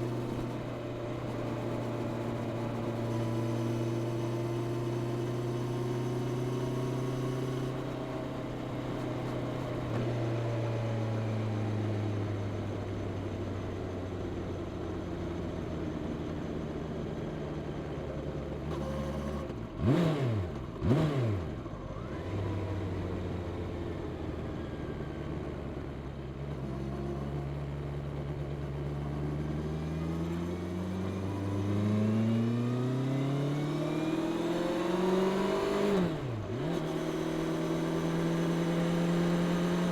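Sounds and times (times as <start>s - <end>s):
motorcycle engine revving: 18.7s - 22.8s, 29.6s - 39.9s.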